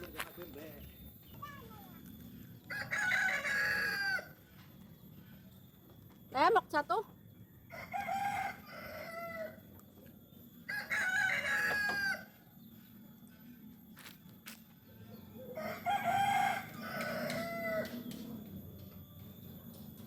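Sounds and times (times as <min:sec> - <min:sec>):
rooster crowing: 0:02.6 - 0:04.5, 0:07.6 - 0:09.9, 0:10.6 - 0:12.5, 0:15.4 - 0:18.2.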